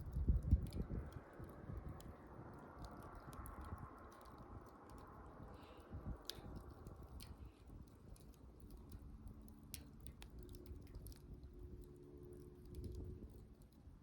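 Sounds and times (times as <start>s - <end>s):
campfire crackling and popping: 0.0s - 14.0s
low rumble of burning wood: 0.0s - 14.0s.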